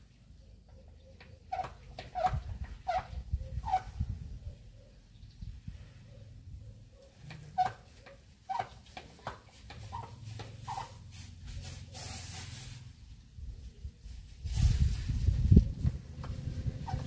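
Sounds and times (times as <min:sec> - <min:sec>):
short hiss: 0:10.6 - 0:13.0.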